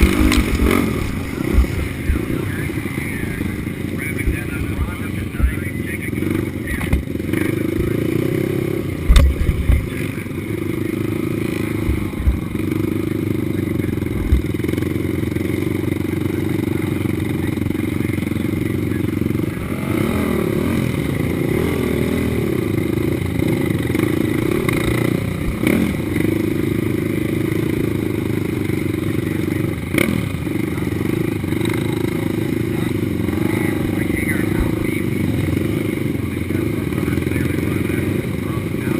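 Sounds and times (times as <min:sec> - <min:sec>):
clatter: 0:00.0 - 0:02.2
loud low thumps: 0:00.0 - 0:05.7, 0:09.0 - 0:10.0
atv engine revving hard: 0:00.0 - 0:38.9.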